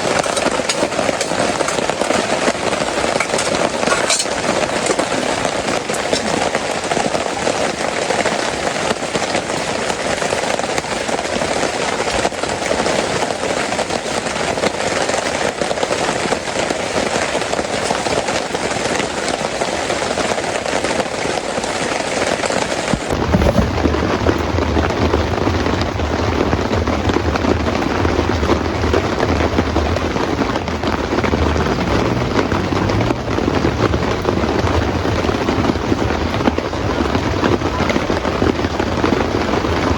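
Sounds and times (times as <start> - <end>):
heavy rain falling: 0.0 - 39.9
low uneven rumble: 22.9 - 39.9.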